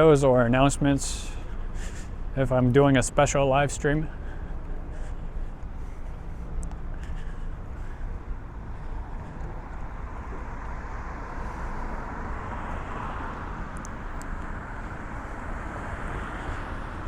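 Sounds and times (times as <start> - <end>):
street traffic noise: 0.0 - 17.0
vehicle passing: 0.6 - 17.0.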